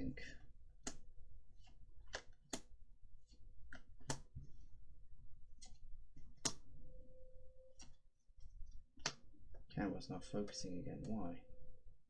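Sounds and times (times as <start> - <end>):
trading cards clicking and snapping: 0.8 - 1.0, 1.6 - 2.7, 3.7 - 4.3, 6.4 - 6.6, 9.0 - 9.2.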